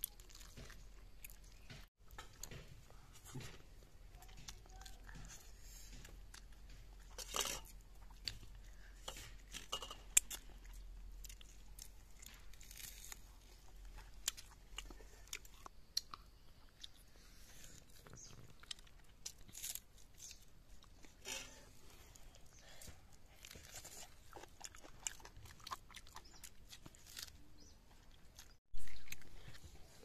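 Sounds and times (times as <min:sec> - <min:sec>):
chewing and crunching food: 0:00.0 - 0:30.0.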